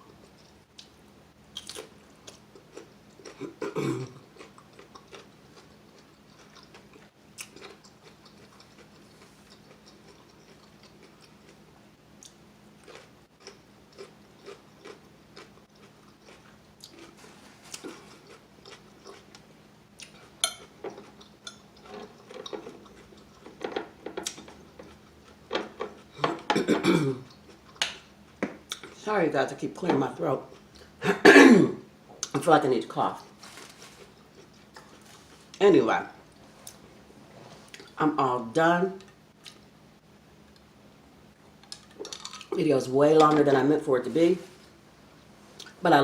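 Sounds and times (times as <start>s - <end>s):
person clearing throat: 3.3s - 4.2s, 26.2s - 27.3s, 31.0s - 31.8s.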